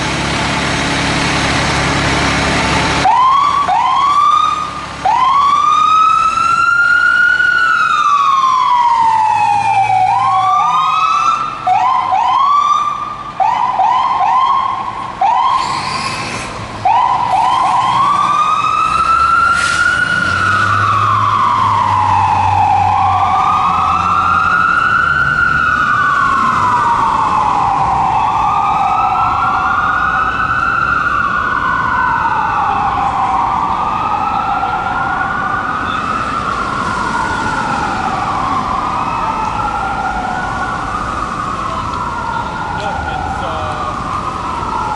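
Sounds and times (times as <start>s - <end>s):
fire engine siren wailing: 0.0s - 44.9s.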